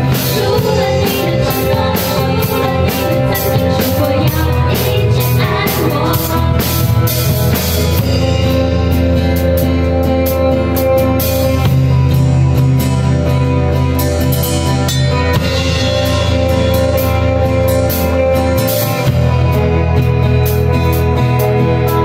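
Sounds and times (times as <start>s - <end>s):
bass notes: 0.0s - 22.0s
drum kit beat: 0.0s - 22.0s
guitar: 0.0s - 22.0s.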